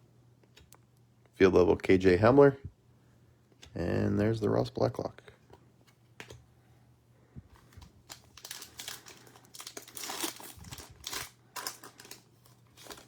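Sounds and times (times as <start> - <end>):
plastic wrapper crinkling and tearing: 7.6 - 13.0.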